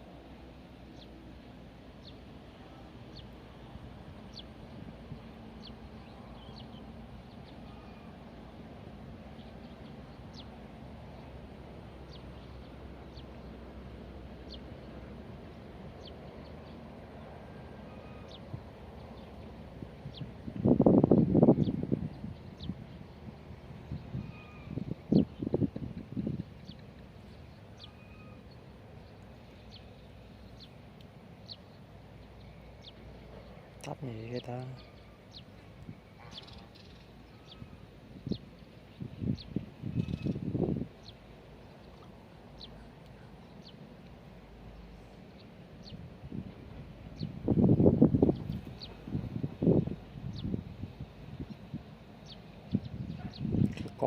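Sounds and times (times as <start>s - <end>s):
low outdoor background hum: 0.0s - 54.0s
small birds chirping: 0.9s - 3.4s, 4.2s - 8.5s, 9.2s - 13.6s, 21.4s - 54.0s
bird high falling calls: 24.2s - 25.3s, 26.6s - 28.7s.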